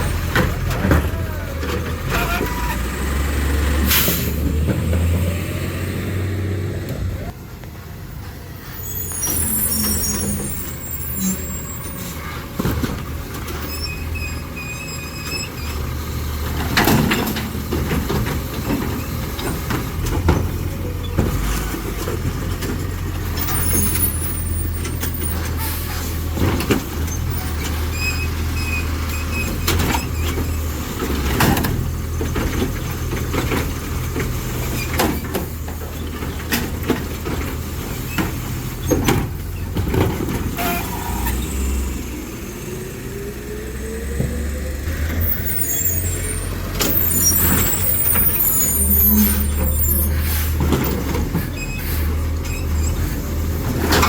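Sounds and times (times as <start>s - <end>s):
clanks and bangs of carts: 0.0s - 5.4s, 8.7s - 42.3s, 44.2s - 54.0s
garbage truck engine running: 0.0s - 54.0s
air brake hissing: 3.9s - 4.4s, 45.4s - 50.7s, 51.7s - 52.3s
brief high squeals: 8.7s - 12.0s, 45.4s - 50.5s.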